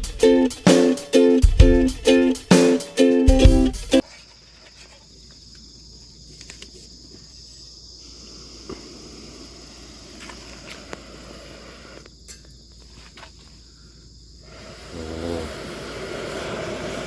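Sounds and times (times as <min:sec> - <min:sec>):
plucked-string music: 0:00.0 - 0:04.0
insect chirring: 0:04.0 - 0:17.0.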